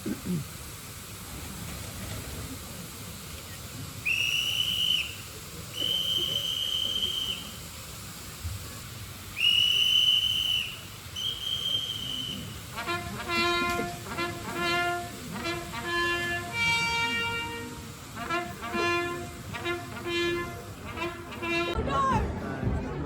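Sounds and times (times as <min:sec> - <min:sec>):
faint crowd noise: 0:00.0 - 0:23.0
whistle blasts: 0:04.0 - 0:07.6, 0:09.4 - 0:21.8.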